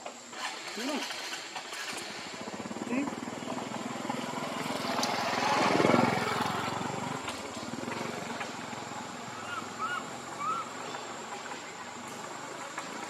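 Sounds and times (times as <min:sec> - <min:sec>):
vehicle engine passing: 0:01.2 - 0:13.0.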